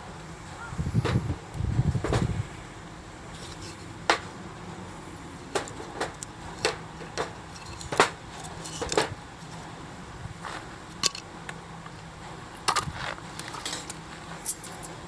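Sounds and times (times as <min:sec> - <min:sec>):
metal parts clinking: 0:07.5 - 0:09.1, 0:12.7 - 0:15.0.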